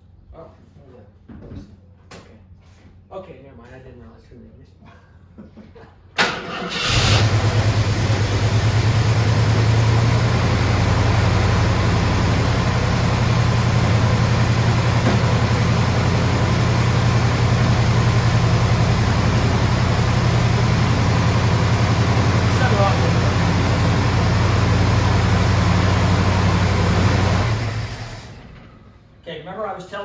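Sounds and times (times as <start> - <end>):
car engine cranking: 6.2 - 11.7
car engine idling: 6.8 - 28.6.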